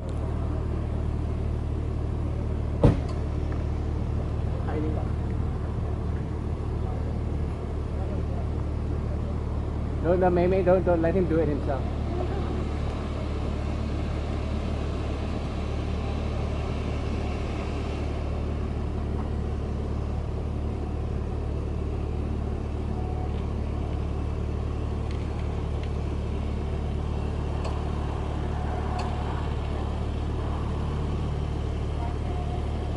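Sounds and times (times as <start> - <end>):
car road and engine rumble: 0.0 - 32.9.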